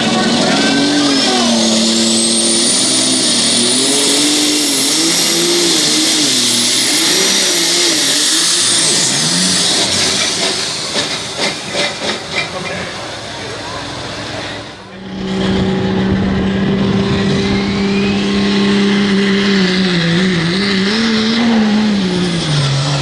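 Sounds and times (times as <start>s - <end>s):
high whine: 0.0s - 11.4s, 13.0s - 23.0s
tractor engine at full throttle: 0.0s - 23.0s.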